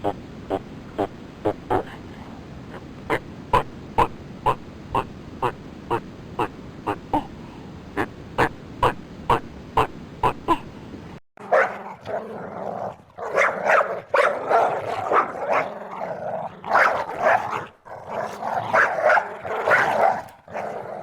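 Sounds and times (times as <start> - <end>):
dog barking: 11.4 - 11.9, 13.2 - 15.7, 16.7 - 17.6, 18.7 - 20.2.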